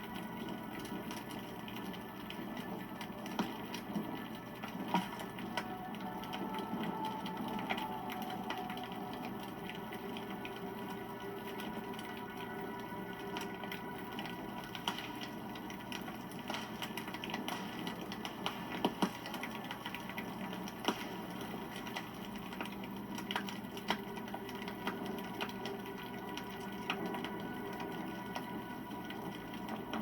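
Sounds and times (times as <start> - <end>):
campfire crackling: 0.0 - 30.0
fire pops: 13.4 - 28.0.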